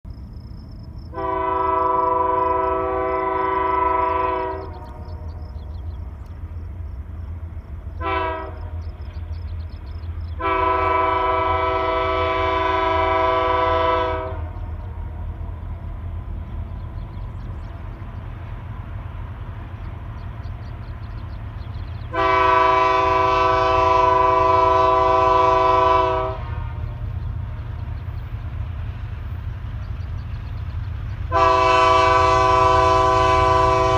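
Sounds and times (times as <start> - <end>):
train rumbling: 0.0 - 33.9
locomotive air horn blasts: 1.1 - 5.1, 8.0 - 8.8, 10.4 - 14.7, 22.1 - 27.1, 31.3 - 33.9.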